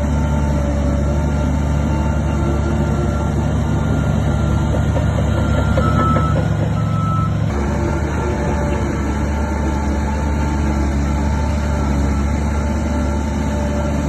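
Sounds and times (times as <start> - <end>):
diesel machinery rumbling: 0.0 - 14.0
reversing alarm beeps: 0.2 - 4.7, 5.3 - 7.6.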